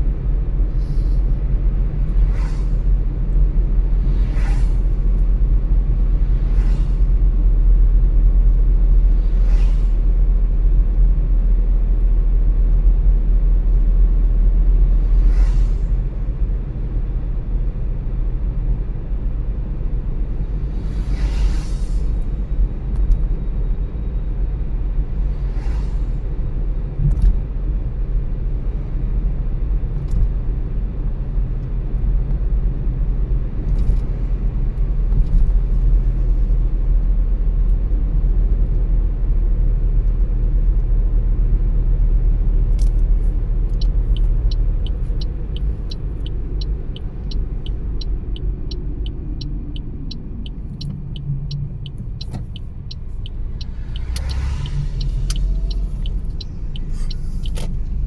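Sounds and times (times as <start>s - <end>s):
car engine and road noise: 0.0s - 58.0s
turn signal ticking: 40.0s - 58.0s.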